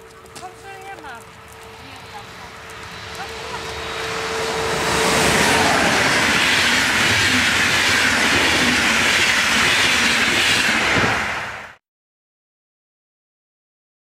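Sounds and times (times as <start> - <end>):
train wheels running on rails: 0.0 - 11.8.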